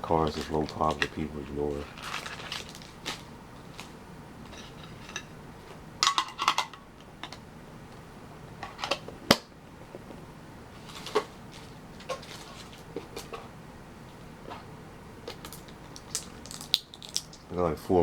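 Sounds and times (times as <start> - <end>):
packs crinkling: 0.1 - 5.2, 10.8 - 13.5, 14.5 - 17.6.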